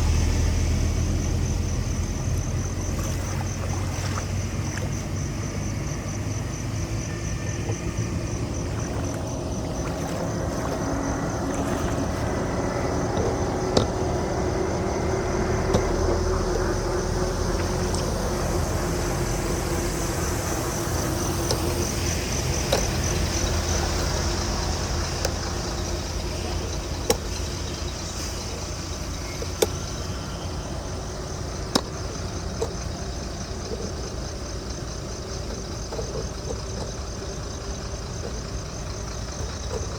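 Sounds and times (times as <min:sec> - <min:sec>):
floodwater rushing into drain: 0:00.0 - 0:05.6, 0:07.4 - 0:39.9
low rumble: 0:00.0 - 0:05.9.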